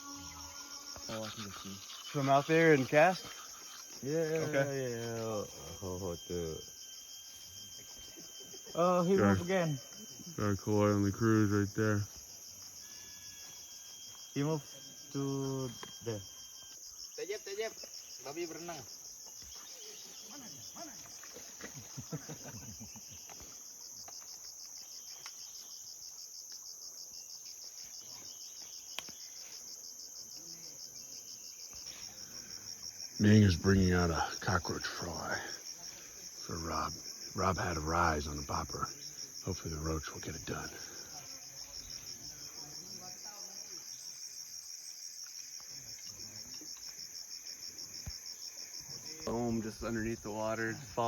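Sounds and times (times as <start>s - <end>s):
insects chorus pulsing: 0.0s - 51.0s
high continuous hiss: 32.0s - 41.0s.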